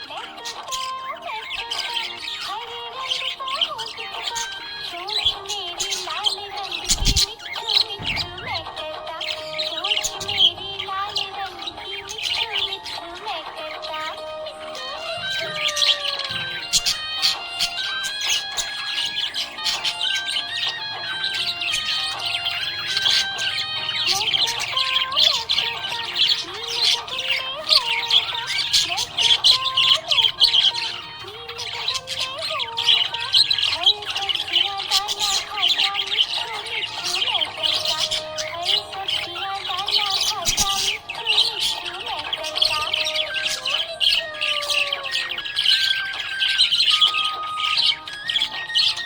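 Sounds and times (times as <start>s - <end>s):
budgerigars chirping and squawking: 0.0s - 49.0s.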